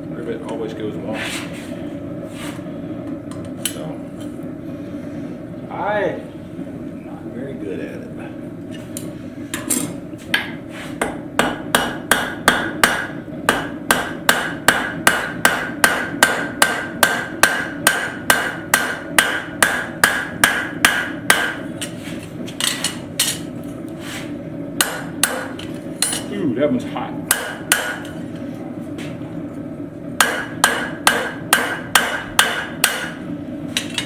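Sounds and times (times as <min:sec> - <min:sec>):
hammer striking steel on anvil: 0:10.4 - 0:22.0, 0:24.8 - 0:26.3, 0:27.3 - 0:28.1, 0:30.2 - 0:33.2.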